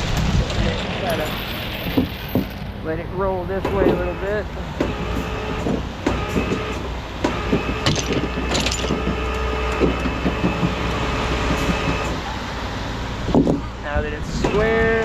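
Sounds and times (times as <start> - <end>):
truck engine running: 0.0 - 15.0
winch whine: 0.1 - 15.0
metal clanks and clicks: 4.8 - 12.2.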